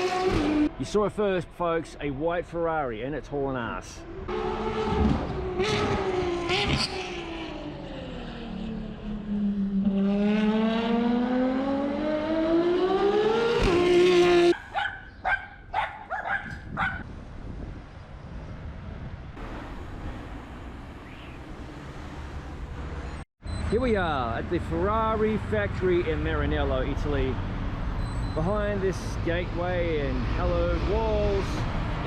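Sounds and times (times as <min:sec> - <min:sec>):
car engine revving: 0:04.3 - 0:14.5.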